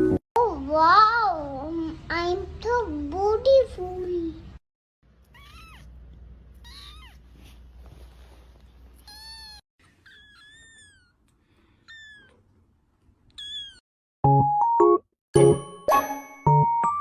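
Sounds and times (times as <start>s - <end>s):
cat meowing: 5.2s - 6.0s, 6.6s - 7.3s, 9.0s - 11.2s, 11.8s - 12.4s, 13.3s - 13.8s
bright jingle music: 14.3s - 17.0s.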